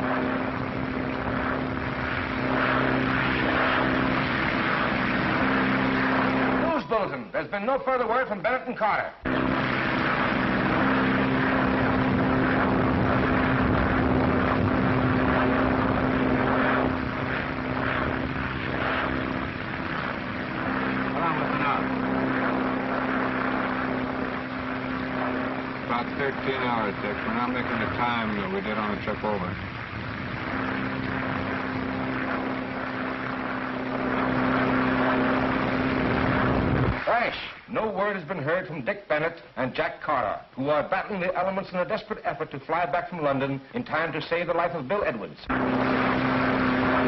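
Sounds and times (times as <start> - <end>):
propeller airplane engines droning: 0.0 - 6.7, 9.3 - 37.1, 45.5 - 47.0.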